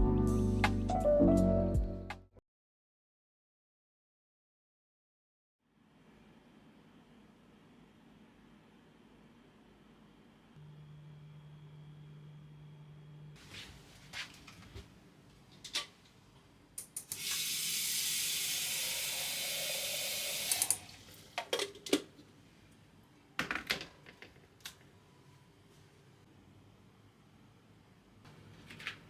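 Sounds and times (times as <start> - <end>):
kitchen tap running: 16.8 - 22.1.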